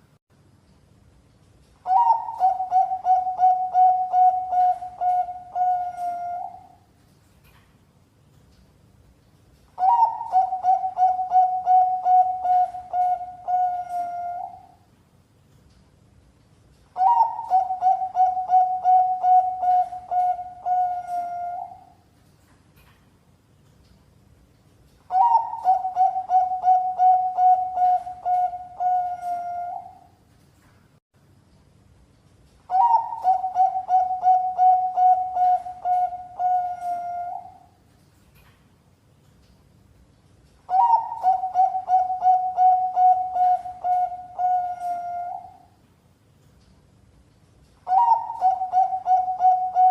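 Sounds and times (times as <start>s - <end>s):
dove cooing: 1.9s - 6.8s, 9.8s - 14.8s, 17.0s - 21.9s, 25.1s - 30.1s, 32.7s - 37.7s, 40.7s - 45.7s, 47.9s - 49.9s.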